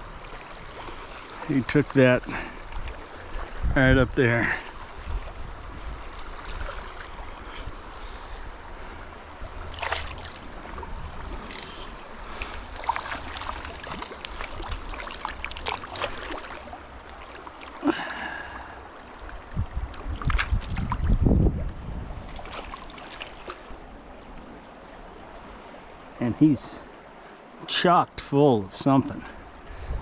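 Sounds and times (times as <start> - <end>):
wind rumbling on microphone: 0.0 - 17.3, 18.3 - 24.6, 29.2 - 30.0
mountain stream running: 0.0 - 30.0.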